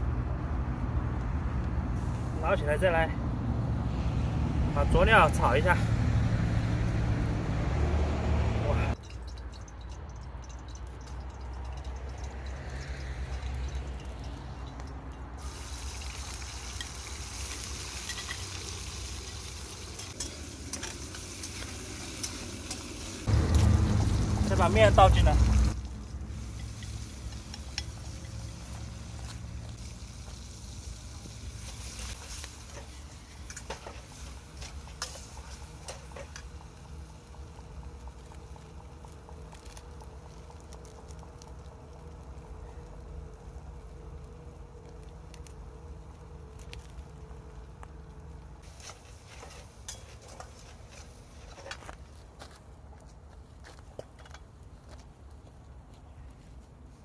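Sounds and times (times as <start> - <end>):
low rumble of fire: 0.0 - 57.0
seasonings sizzling in a pan: 15.4 - 41.6.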